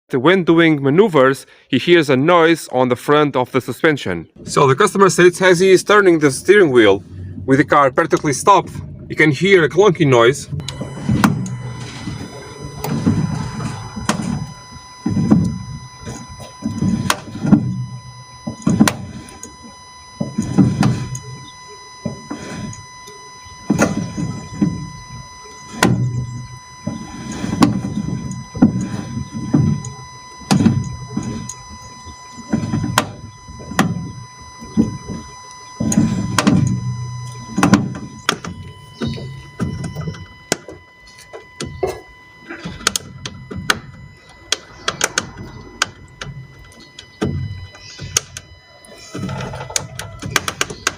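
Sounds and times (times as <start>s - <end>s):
car suspension clunking: 10.2s - 50.9s
low knocks: 10.5s - 42.1s.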